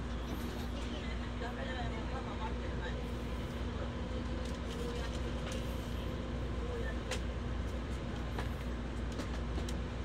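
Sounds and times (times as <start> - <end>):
train cabin running rumble: 0.0 - 10.0.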